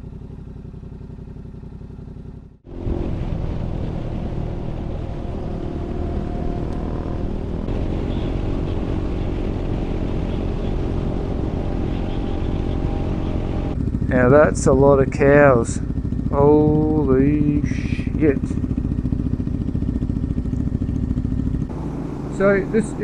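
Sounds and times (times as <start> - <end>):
motorcycle engine running: 0.0 - 23.0
wind and road noise: 0.0 - 23.0.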